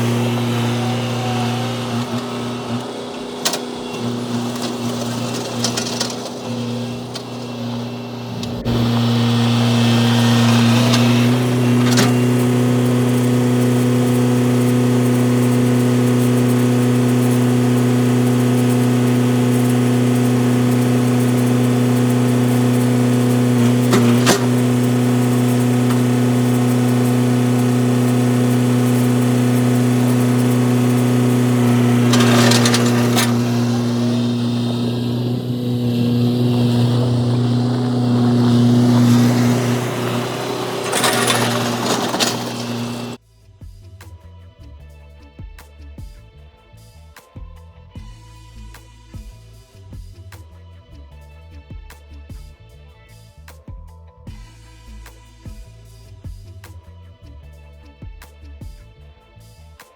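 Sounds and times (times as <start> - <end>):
construction machine engine running: 0.0 - 43.2
short clatter: 0.0 - 43.2.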